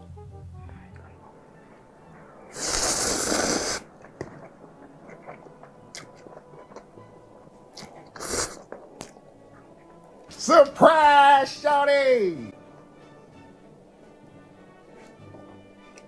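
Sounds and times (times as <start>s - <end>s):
soft chewing: 0.7s - 10.4s, 12.6s - 16.0s
crunchy bite: 2.5s - 6.9s, 7.7s - 9.2s
mouth clicks: 2.5s - 10.4s.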